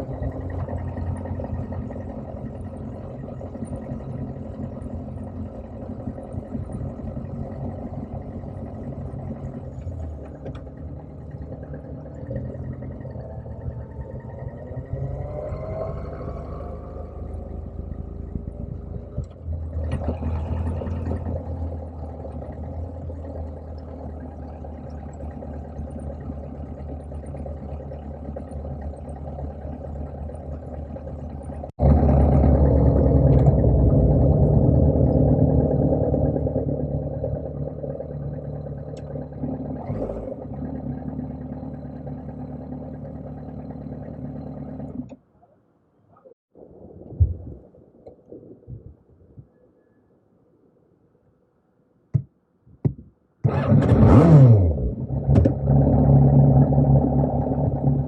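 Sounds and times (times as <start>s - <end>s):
motorcycle engine running: 21.0s - 44.9s.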